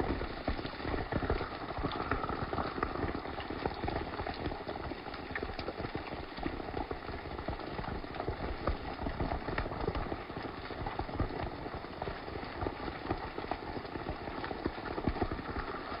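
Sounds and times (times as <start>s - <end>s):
hail pattering on thatch roof: 13.2s - 16.0s.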